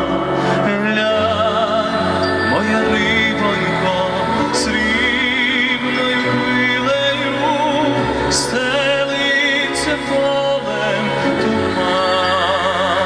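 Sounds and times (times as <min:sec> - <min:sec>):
musical accompaniment: 0:00.0 - 0:13.0
operatic singing: 0:00.0 - 0:13.0.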